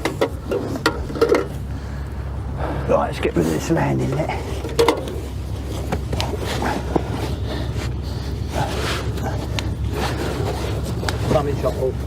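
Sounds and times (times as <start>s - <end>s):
steady low hum: 0.0s - 12.0s
fishing gear rustling and clicking: 4.4s - 12.0s.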